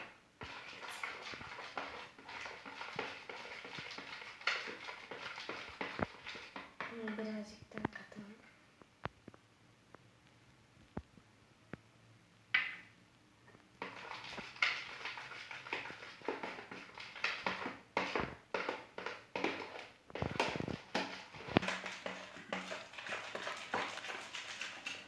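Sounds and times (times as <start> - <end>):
slime squishing in a bowl: 0.0 - 8.4, 13.7 - 25.0.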